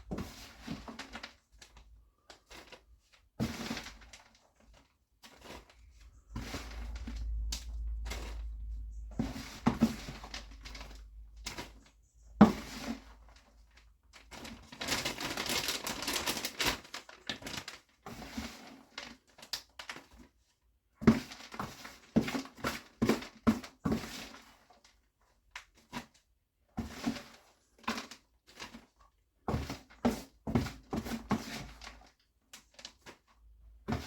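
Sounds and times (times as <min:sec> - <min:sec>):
plastic bag rustling and crinkling: 0:00.0 - 0:20.4.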